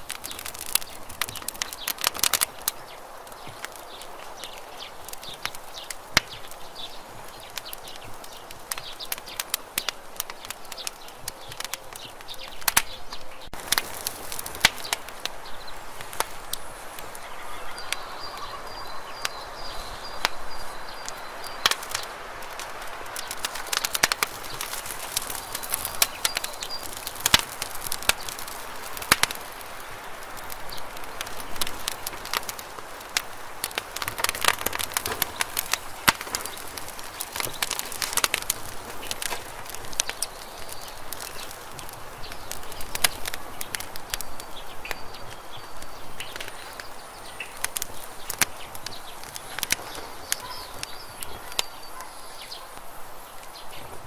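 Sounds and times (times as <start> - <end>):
campfire wood crackling and popping: 0.0 - 54.0
flames hissing: 0.0 - 54.0.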